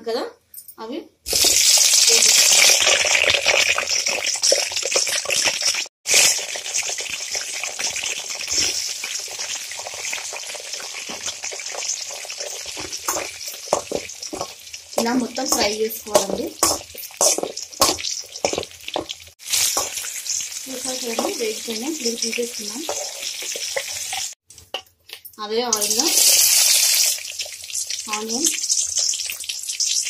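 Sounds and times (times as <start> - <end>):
food frying in hot oil: 1.3 - 24.9, 25.7 - 30.0
spatula scraping a pan: 10.5 - 20.5, 22.8 - 24.4.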